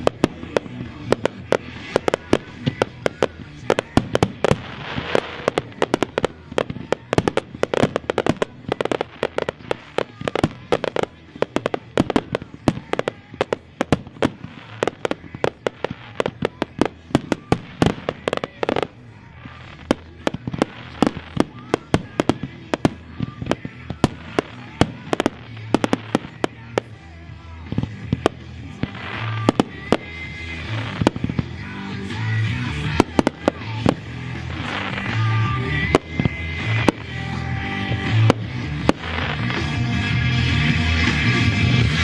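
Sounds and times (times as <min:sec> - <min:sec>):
fireworks banging: 0:00.0 - 0:42.0.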